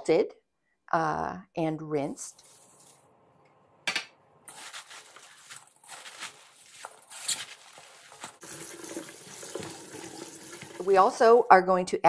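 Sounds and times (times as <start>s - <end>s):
cabbage leaves rustling: 4.5s - 8.4s.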